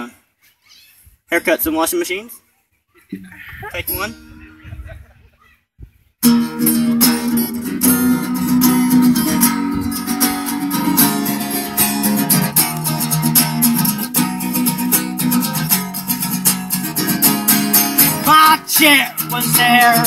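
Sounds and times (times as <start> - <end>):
acoustic guitar strumming: 3.9 - 4.6, 6.2 - 20.0.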